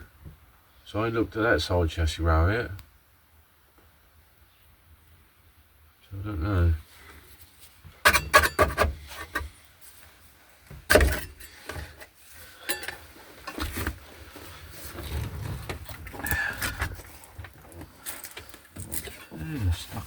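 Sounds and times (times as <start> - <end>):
rustling: 6.8 - 20.0
car parts knocking and clattering: 8.0 - 9.5, 10.7 - 12.1, 12.7 - 14.0.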